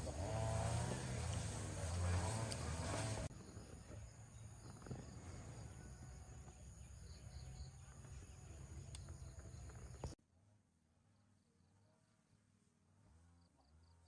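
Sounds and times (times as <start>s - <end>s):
insects chirring: 3.3s - 10.2s.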